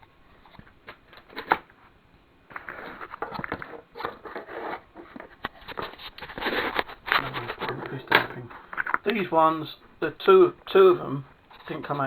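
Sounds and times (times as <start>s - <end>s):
scraping and rustling: 0.2s - 9.1s.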